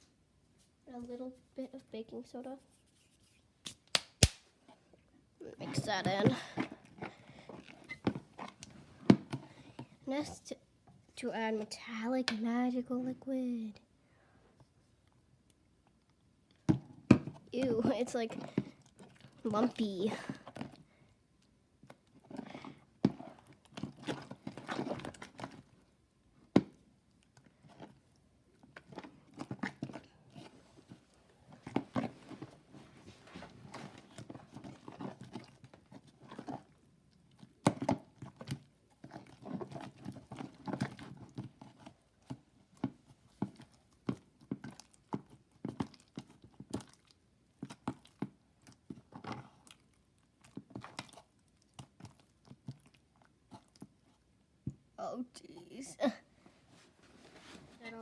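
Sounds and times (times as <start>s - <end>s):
slime squishing: 26.7s - 54.3s.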